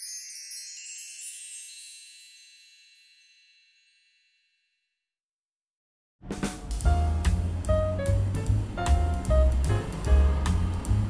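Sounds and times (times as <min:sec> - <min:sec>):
sparkling chimes: 0:00.0 - 0:04.8.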